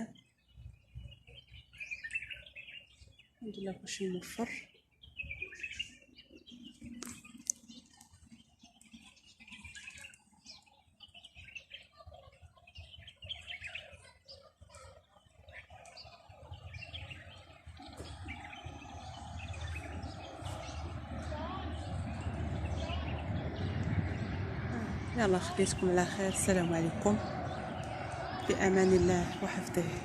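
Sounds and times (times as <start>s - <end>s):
small birds chirping: 0.0s - 30.0s
low rumble: 17.6s - 30.0s.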